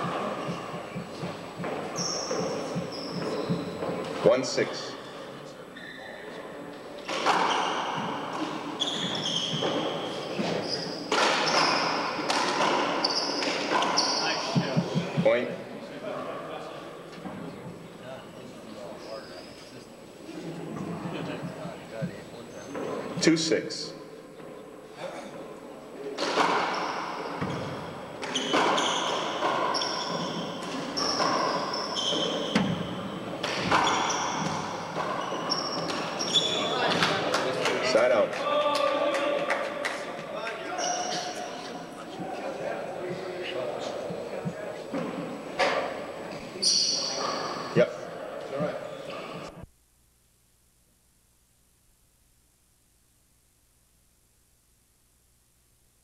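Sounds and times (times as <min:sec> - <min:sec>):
players' footwork: 0:00.0 - 0:04.4, 0:06.7 - 0:15.5
shoes squeaking on court floor: 0:00.0 - 0:15.2, 0:17.0 - 0:19.8, 0:26.2 - 0:37.3, 0:40.6 - 0:47.8
short high squeaks: 0:05.0 - 0:06.3, 0:08.8 - 0:12.1, 0:13.0 - 0:14.6, 0:28.3 - 0:33.0, 0:33.7 - 0:37.0, 0:40.7 - 0:41.8, 0:46.6 - 0:47.7.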